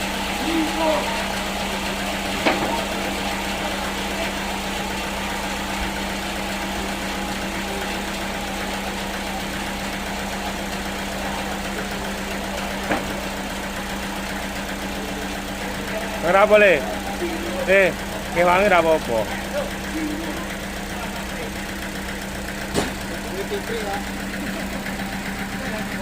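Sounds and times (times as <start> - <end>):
sawmill machinery humming: 0.0 - 26.0
sharp knocks: 22.7 - 23.0.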